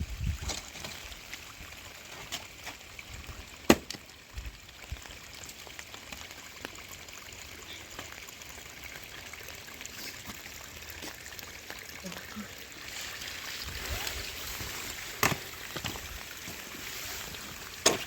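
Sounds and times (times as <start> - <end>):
water trickling and dripping: 0.0 - 18.0.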